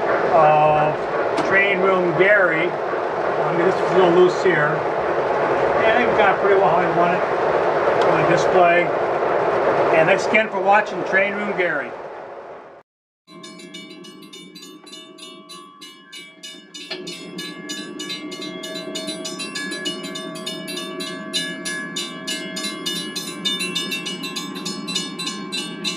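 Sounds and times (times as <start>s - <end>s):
steady tones: 13.3s - 25.9s
train clattering: 13.4s - 25.9s.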